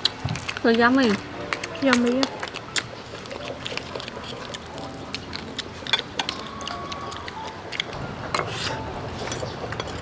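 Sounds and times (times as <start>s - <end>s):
crab shell cracking: 0.0s - 8.0s.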